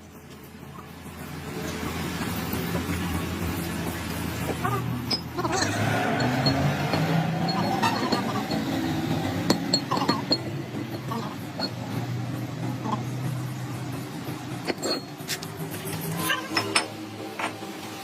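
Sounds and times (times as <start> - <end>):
metal tools clinking: 4.5 - 13.1, 14.6 - 17.7.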